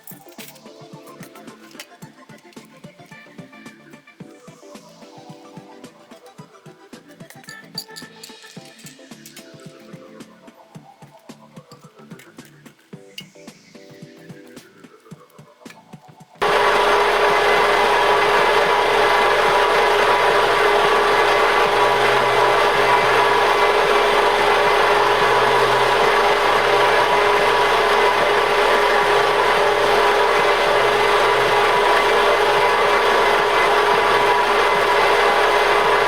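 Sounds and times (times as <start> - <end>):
vibrating sieve machine humming: 16.4 - 36.0.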